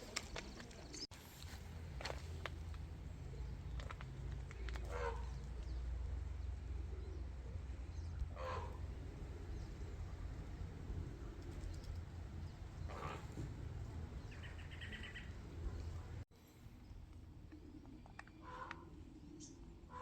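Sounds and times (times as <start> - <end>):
bird calling: 3.3 - 5.9, 7.9 - 16.2, 17.5 - 20.0
bird chatter: 8.4 - 16.2.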